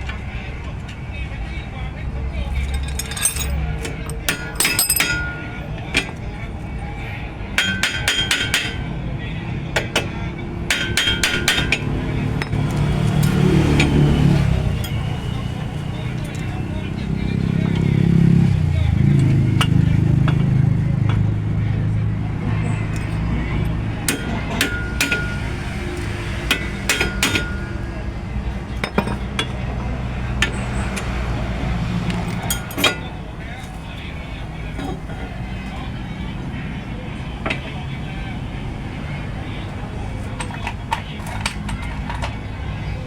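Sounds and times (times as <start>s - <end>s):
hand tools clinking on steel: 2.4s - 6.2s, 7.6s - 8.9s, 22.7s - 27.9s, 28.7s - 29.7s, 32.0s - 33.8s, 40.2s - 42.6s
hammer striking metal: 2.8s - 6.2s, 7.6s - 8.8s, 10.7s - 12.8s, 24.0s - 25.8s, 26.4s - 27.8s.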